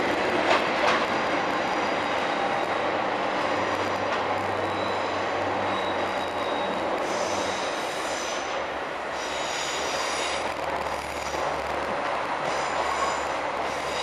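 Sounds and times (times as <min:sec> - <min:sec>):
high-pitched wheel squeal: 0:09.2 - 0:10.4.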